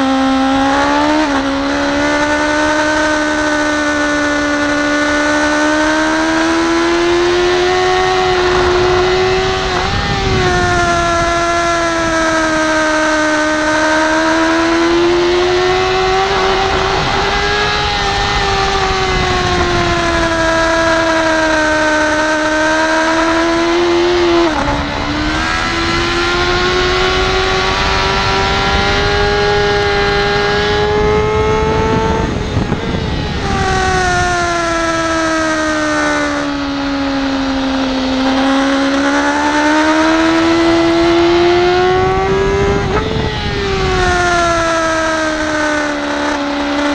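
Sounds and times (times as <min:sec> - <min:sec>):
motorcycle engine at high revs: 0:00.0 - 0:46.9
wind rush: 0:04.6 - 0:46.9.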